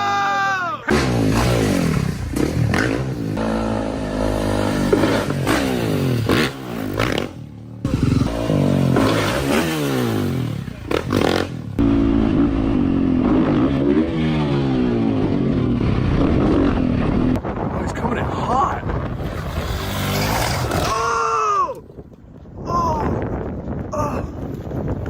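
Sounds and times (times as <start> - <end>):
motorcycle engine revving: 0.9 - 17.4, 18.9 - 21.1.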